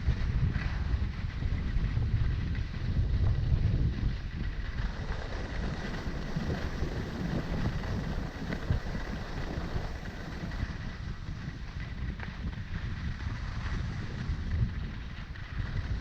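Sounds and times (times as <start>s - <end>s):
wind buffeting microphone: 0.0s - 16.0s
skis scraping on icy snow: 4.9s - 10.7s.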